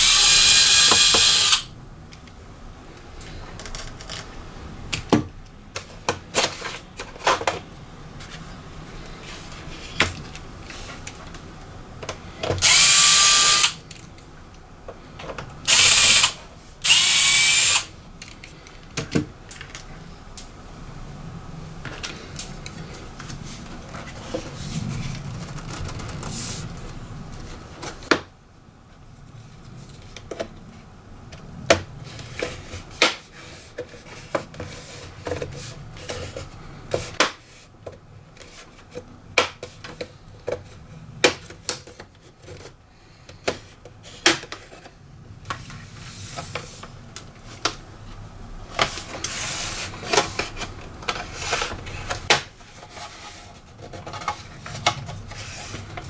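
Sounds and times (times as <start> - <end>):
rubbing and scraping: 48.8 - 56.0.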